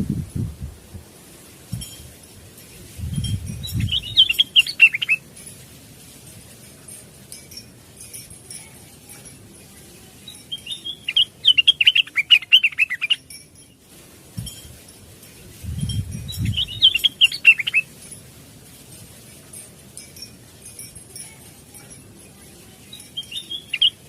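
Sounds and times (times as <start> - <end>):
bird singing chattering notes: 2.9 - 5.4, 9.2 - 13.8, 15.6 - 18.0, 21.8 - 24.0.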